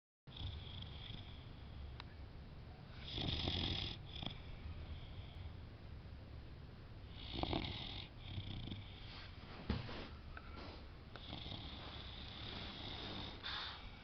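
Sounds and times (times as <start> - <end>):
dog snoring: 0.3 - 1.9, 3.0 - 5.4, 7.1 - 9.1, 11.2 - 14.0
breathy hissing: 10.5 - 14.0.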